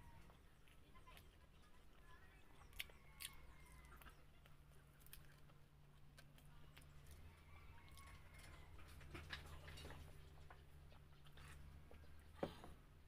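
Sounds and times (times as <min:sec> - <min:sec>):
person chewing with mouth clicks: 0:02.6 - 0:07.3.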